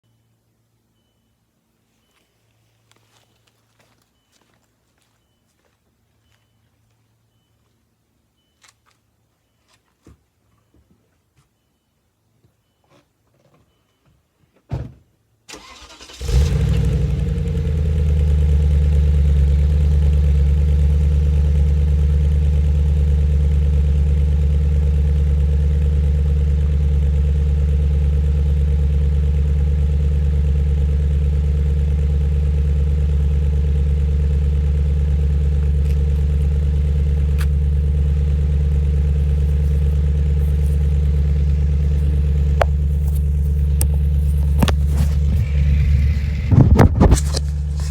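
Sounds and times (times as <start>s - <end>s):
car engine cold start and idle: 15.5s - 47.9s.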